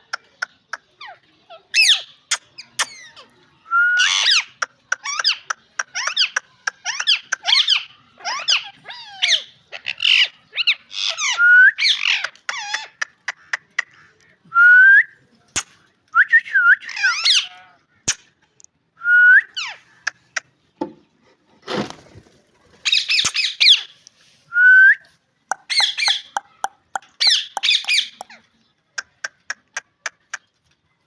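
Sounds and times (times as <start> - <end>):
parakeet chattering chirps: 25.5 - 28.4.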